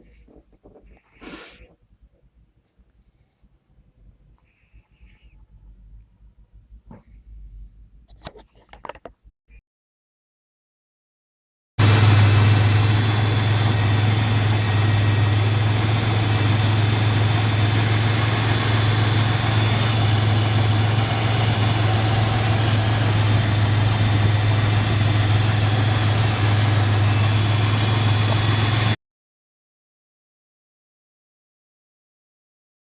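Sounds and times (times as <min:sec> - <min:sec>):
pickup engine idling: 0:11.8 - 0:29.0.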